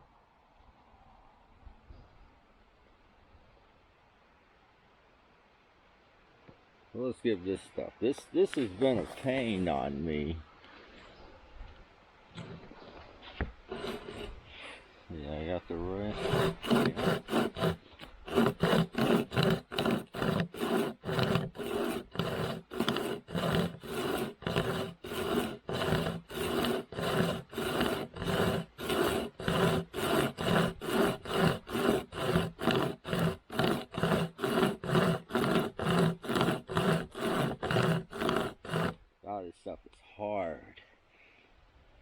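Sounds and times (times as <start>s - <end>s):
hand chain saw cutting wood: 13.7s - 14.4s, 16.1s - 39.0s.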